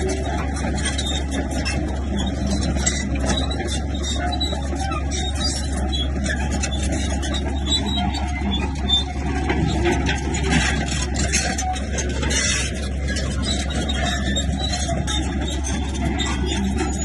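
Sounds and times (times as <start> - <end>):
bulldozer diesel engine running: 0.0 - 17.0
knocks and clatter: 0.0 - 17.0.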